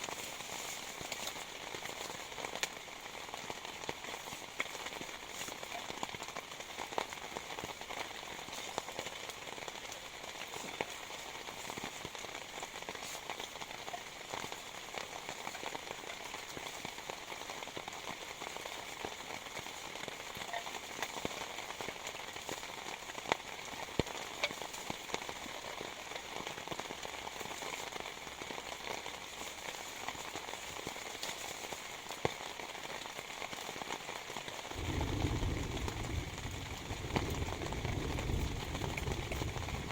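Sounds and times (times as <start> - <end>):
heavy rain falling: 0.0 - 39.9
sharp raindrop hits: 34.7 - 39.9.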